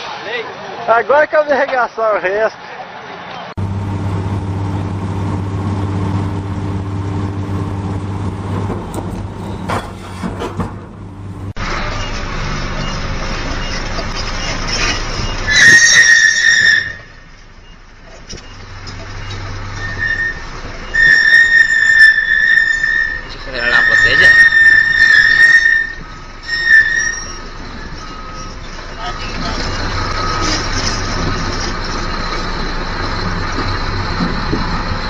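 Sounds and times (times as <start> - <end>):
heavy vehicle engine running: 3.5 - 15.5, 17.0 - 35.0
loud high-pitched squeal: 11.6 - 17.3, 19.7 - 34.2.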